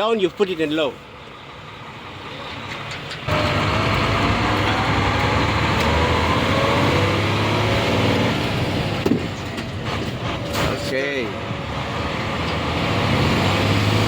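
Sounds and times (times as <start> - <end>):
truck diesel engine accelerating: 0.0 - 14.0.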